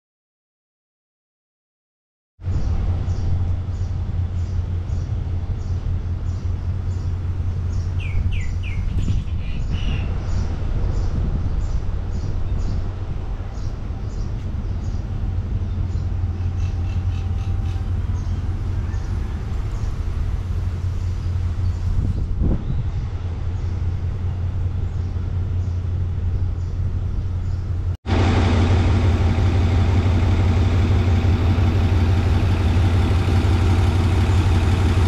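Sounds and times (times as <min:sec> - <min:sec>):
low rumble: 0:02.4 - 0:35.0
birds chirping: 0:02.5 - 0:27.9.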